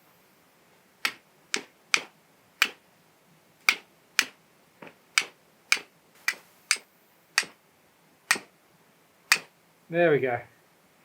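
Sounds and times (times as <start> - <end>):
steel striking flint: 5.2 - 7.6, 8.3 - 8.5, 9.3 - 9.5.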